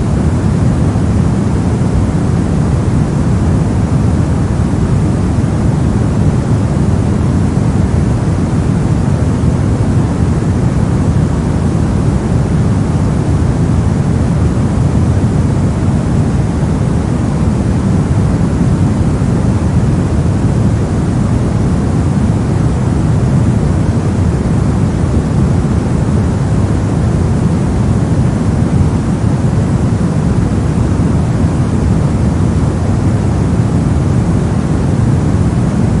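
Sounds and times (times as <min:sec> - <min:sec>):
deep rushing brown noise: 0:00.0 - 0:36.0.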